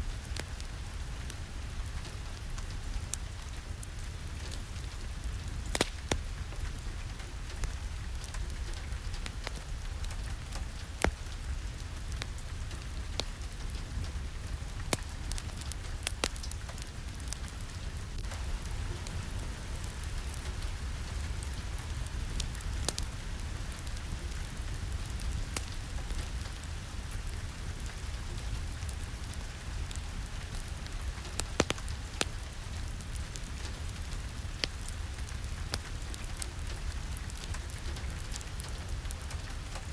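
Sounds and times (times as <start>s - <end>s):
steady rain: 0.0s - 39.9s
wood fire crackling: 0.0s - 39.9s.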